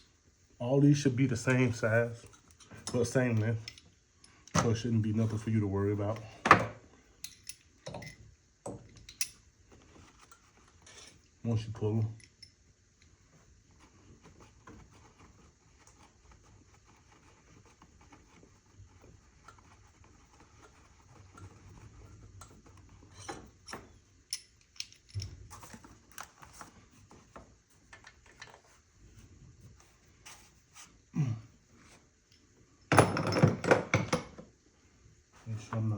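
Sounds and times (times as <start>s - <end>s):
tools and engine parts handled: 23.1s - 26.7s.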